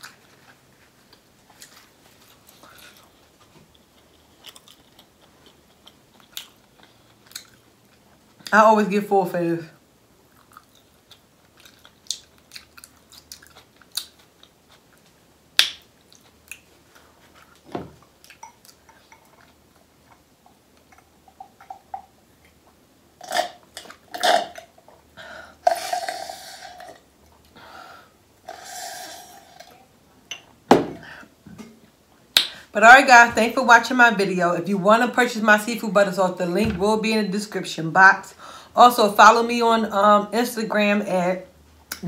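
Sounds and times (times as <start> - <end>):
soft chewing: 0.0 - 8.5, 10.3 - 15.3, 15.9 - 25.1
slurping through a straw: 25.6 - 27.0, 28.5 - 29.9.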